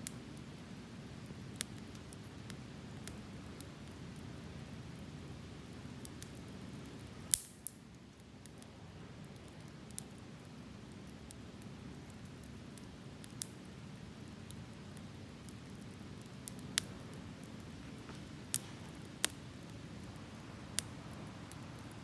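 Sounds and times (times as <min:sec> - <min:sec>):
campfire burning: 0:00.0 - 0:22.0
fire crackling and popping: 0:00.0 - 0:22.0.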